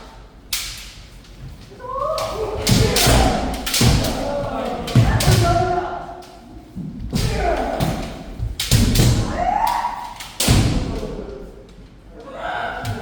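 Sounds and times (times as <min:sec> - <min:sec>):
people shouting: 0:01.7 - 0:06.5, 0:07.1 - 0:13.0
bamboo sword strikes: 0:02.6 - 0:04.3, 0:07.2 - 0:11.1
feet stamping: 0:06.5 - 0:09.6.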